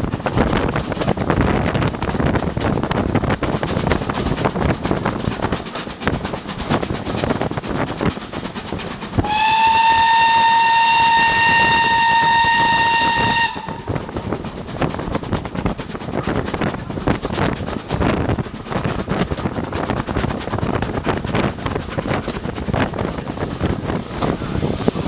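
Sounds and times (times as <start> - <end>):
train rumble and clatter: 0.0 - 25.0
steam locomotive whistle: 9.2 - 14.0.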